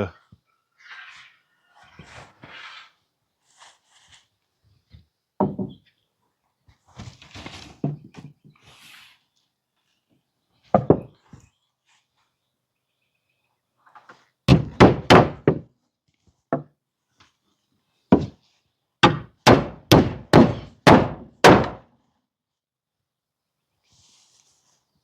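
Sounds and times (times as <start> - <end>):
hammer driving nails into wood: 14.5 - 15.6, 19.0 - 21.8.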